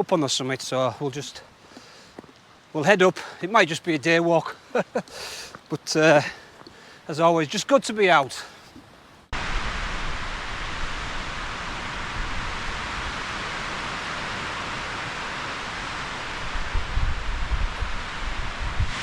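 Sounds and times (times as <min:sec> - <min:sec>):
wind through trees: 0:00.0 - 0:19.0
wind buffeting microphone: 0:09.3 - 0:19.0.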